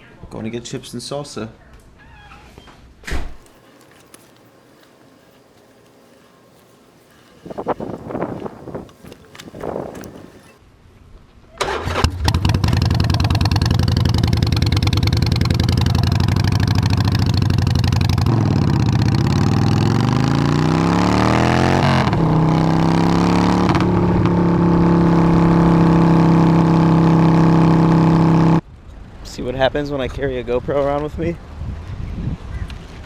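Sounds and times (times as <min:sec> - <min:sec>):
motorcycle engine running: 0:03.5 - 0:10.6, 0:12.1 - 0:28.6.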